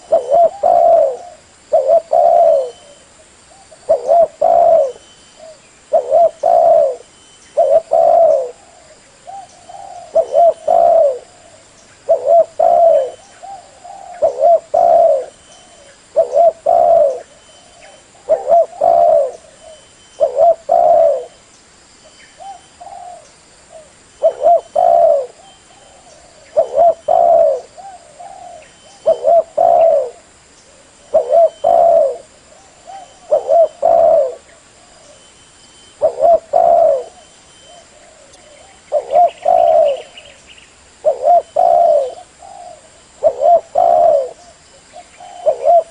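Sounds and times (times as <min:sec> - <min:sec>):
dove cooing: 0:00.0 - 0:21.4, 0:22.4 - 0:35.3, 0:36.0 - 0:40.4, 0:41.0 - 0:45.9.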